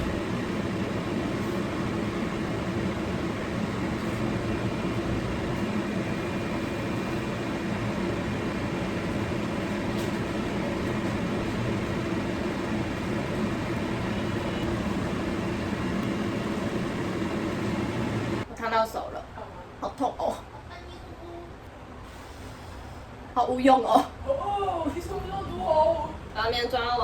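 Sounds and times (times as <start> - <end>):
steady whirring drone: 0.0 - 18.5.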